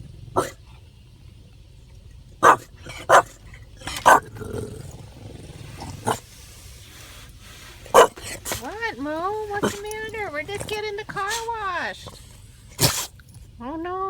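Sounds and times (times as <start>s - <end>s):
dog barking: 0.0s - 0.7s, 2.4s - 6.3s, 7.8s - 8.8s, 9.4s - 13.2s
low steady rumble: 0.0s - 14.0s.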